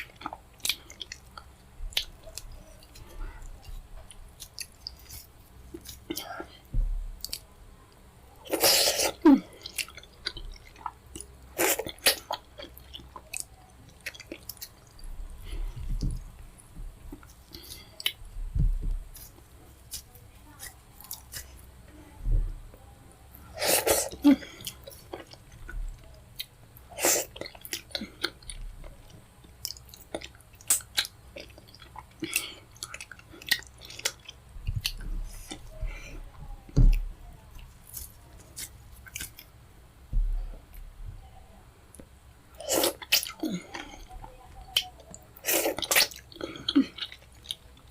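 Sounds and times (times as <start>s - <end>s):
wet chewing: 0.0s - 6.6s, 8.4s - 16.3s, 23.6s - 35.8s, 36.9s - 39.6s, 41.9s - 44.1s, 44.7s - 47.9s.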